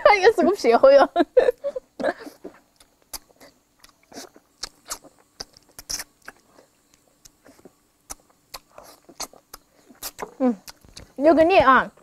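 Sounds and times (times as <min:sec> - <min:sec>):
people chewing meat: 0:02.0 - 0:11.2
wet mouth clicks and smacks: 0:02.4 - 0:11.2.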